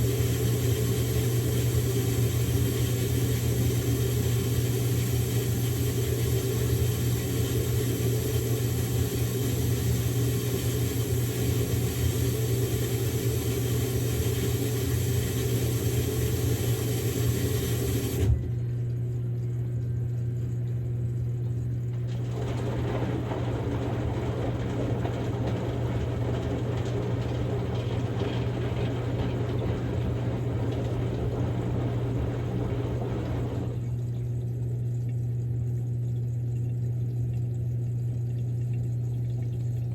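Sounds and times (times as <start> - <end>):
washing machine motor hum: 0.0 - 39.9
washing machine drum turning: 21.9 - 34.2.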